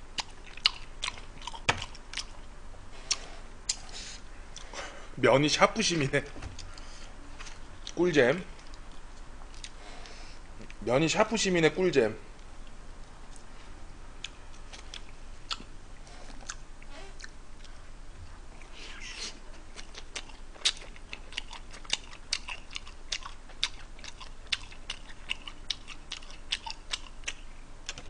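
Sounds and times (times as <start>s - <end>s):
close chewing: 0.1s - 3.9s, 8.6s - 10.8s, 14.2s - 17.8s, 19.5s - 28.0s.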